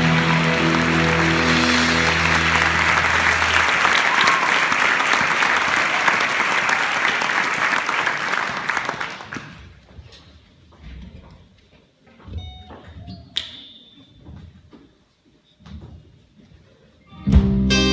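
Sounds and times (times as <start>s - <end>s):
guitar chord: 0.0s - 3.7s, 17.4s - 17.9s
audience applauding: 0.0s - 9.7s.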